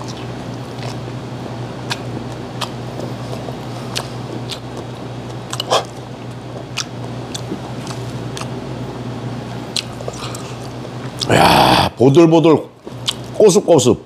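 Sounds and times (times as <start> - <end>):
mouth chewing clicks and smacks: 0.0 - 1.1, 1.8 - 8.6, 9.6 - 11.3, 13.0 - 13.4
steady low hum: 0.0 - 14.0.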